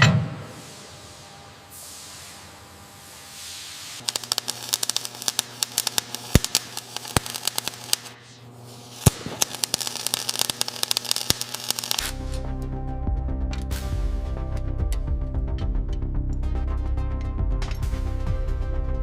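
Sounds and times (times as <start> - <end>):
electric welding crackle: 0.4 - 12.8.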